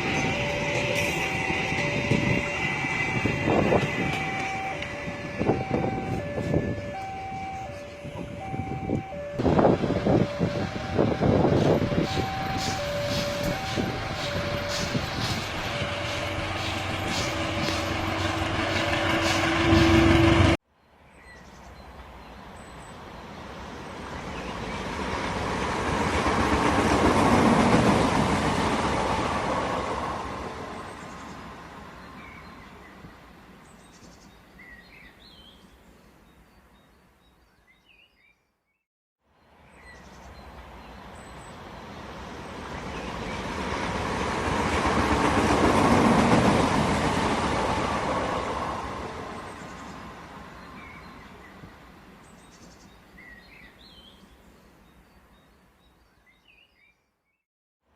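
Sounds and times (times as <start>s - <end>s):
loud steady tone: 0.0s - 20.6s
train running on rails: 0.0s - 20.6s, 21.9s - 34.4s, 40.3s - 52.4s.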